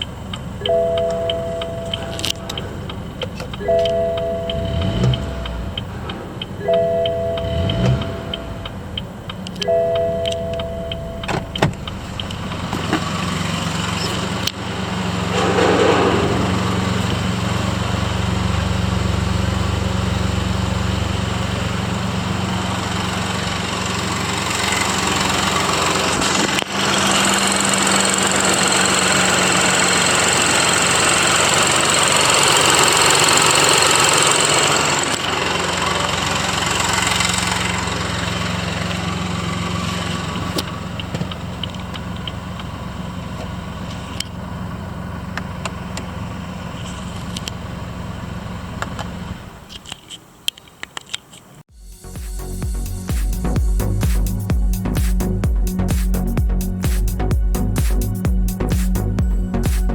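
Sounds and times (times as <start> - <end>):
high engine whine: 0.0 - 49.9, 51.7 - 59.9
car engine starting and idling: 0.0 - 59.9.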